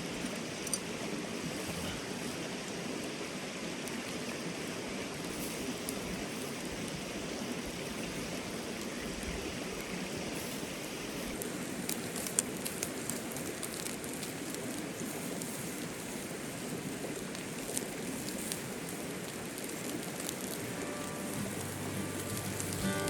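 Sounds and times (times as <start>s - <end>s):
fire crackles and pops: 0.1s - 23.0s
meat sizzling on a grill: 5.2s - 23.0s
mountain stream rushing: 9.5s - 23.0s.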